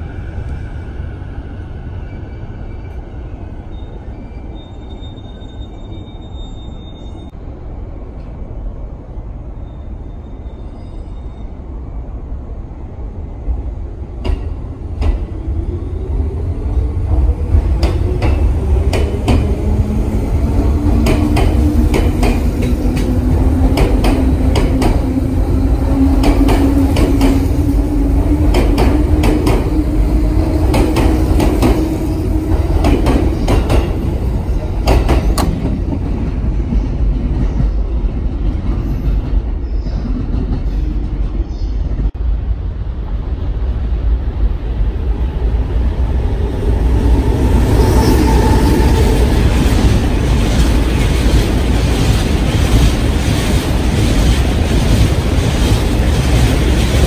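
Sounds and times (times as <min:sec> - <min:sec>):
train rumble: 0:11.6 - 0:57.0.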